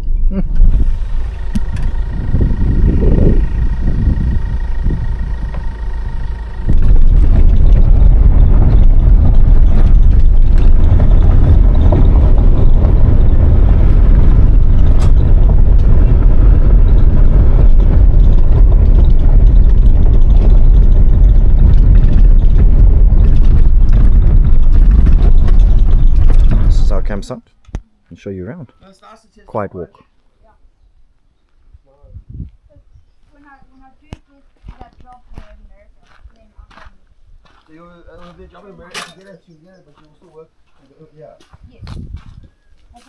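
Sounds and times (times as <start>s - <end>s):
car road and wind rumble: 0.0s - 27.4s, 41.6s - 42.8s.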